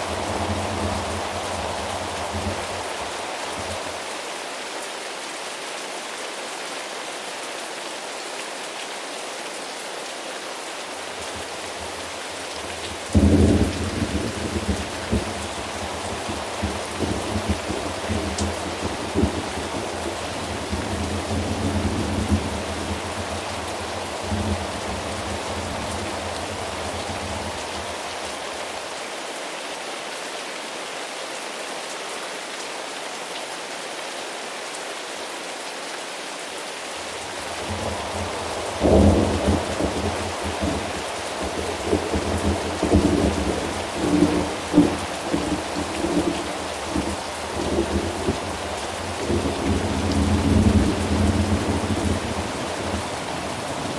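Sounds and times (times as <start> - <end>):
thunder rumbling: 0.0 - 4.0, 12.7 - 28.4, 37.2 - 53.9
steady rain: 0.0 - 53.9.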